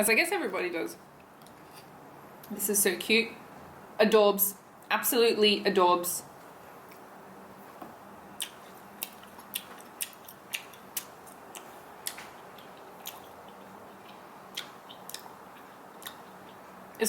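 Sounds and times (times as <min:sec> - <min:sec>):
bubblegum chewing wet mouth clicks: 0:08.4 - 0:16.6.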